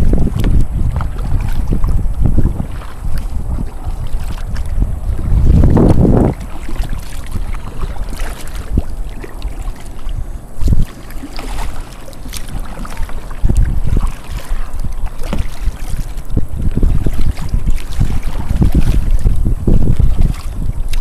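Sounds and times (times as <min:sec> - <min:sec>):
water noise: 0:00.0 - 0:21.0
wind rumbling on microphone: 0:00.0 - 0:21.0.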